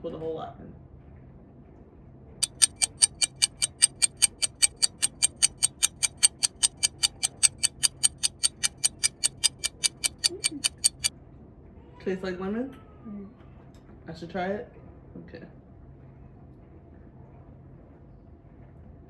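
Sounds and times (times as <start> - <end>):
rapid even clicking: 2.4 - 11.1.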